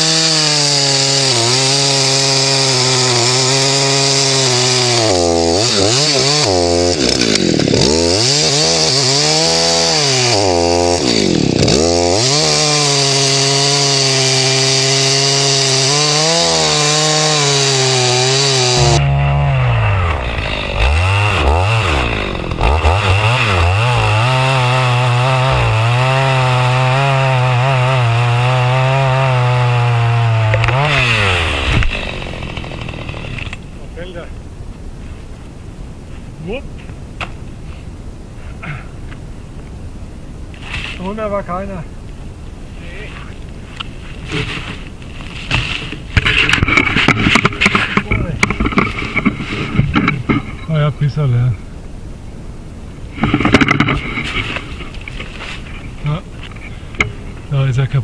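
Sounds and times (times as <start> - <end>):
chainsaw cutting wood: 0.0 - 34.2, 43.8 - 50.8, 53.1 - 57.5.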